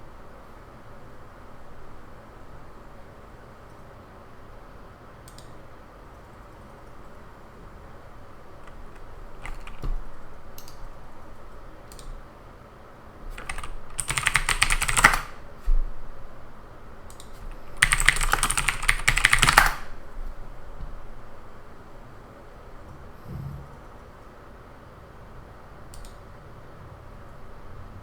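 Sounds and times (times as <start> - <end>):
typing on computer keyboard: 5.2 - 5.6, 8.6 - 11.0, 11.9 - 12.2, 13.3 - 15.4, 17.1 - 20.0.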